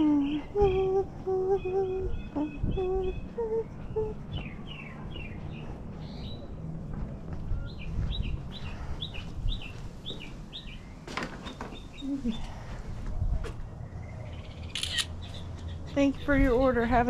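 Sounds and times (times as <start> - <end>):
wind rumble on microphone: 0.0 - 10.6, 11.8 - 14.7.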